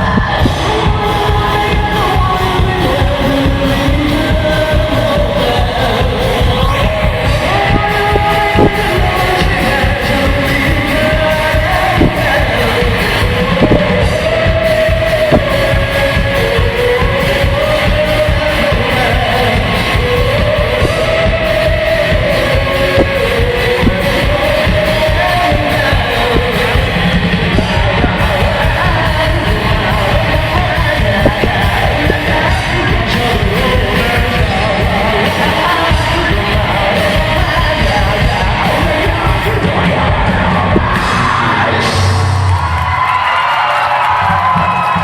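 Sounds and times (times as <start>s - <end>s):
person singing: 0.0s - 42.6s
live rock band playing: 0.0s - 43.1s
crowd shouting: 38.1s - 45.0s.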